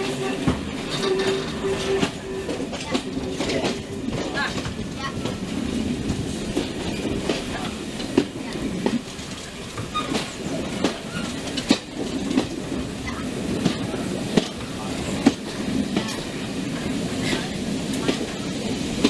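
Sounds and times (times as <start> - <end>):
train carriage rumble: 0.0 - 19.0
wheels clicking over rail joints: 0.0 - 19.0.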